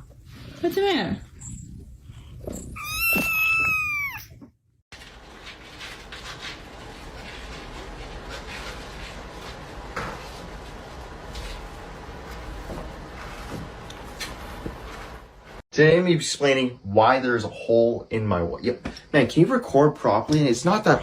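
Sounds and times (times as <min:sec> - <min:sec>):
cat meowing: 0:02.7 - 0:04.5.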